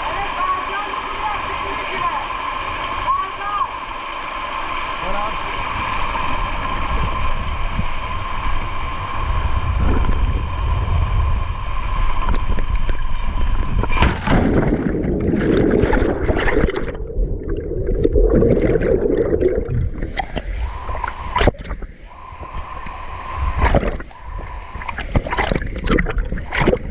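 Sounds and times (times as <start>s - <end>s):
waterfall rushing: 0.0s - 13.6s
muffled water gurgling: 0.0s - 26.9s
wind on microphone: 5.1s - 26.9s.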